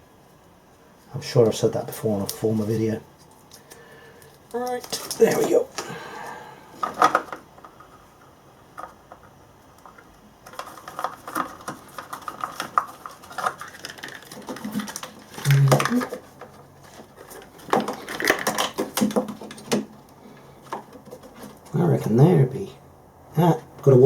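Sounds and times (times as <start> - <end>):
hands handling plastic box: 9.8 - 21.7.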